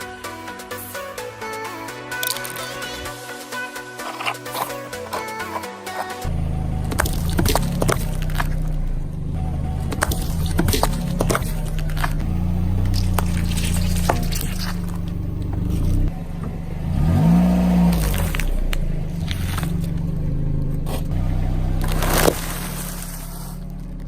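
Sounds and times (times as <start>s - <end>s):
car engine running slowly: 6.2s - 24.0s
tyres crushing fruit: 9.8s - 21.2s.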